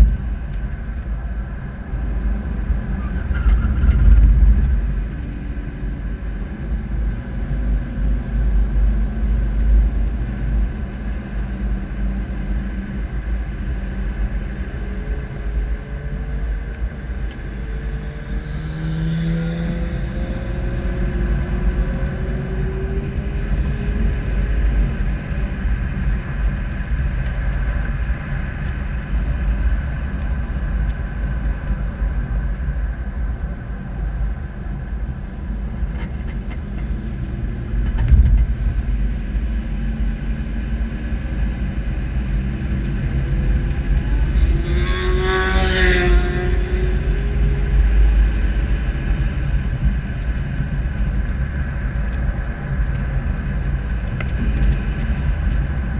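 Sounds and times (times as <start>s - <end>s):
road and wind noise: 0.0s - 55.9s
vehicle engine low rumble: 0.0s - 55.9s
motorcycle passing by: 17.8s - 22.9s, 43.1s - 48.2s.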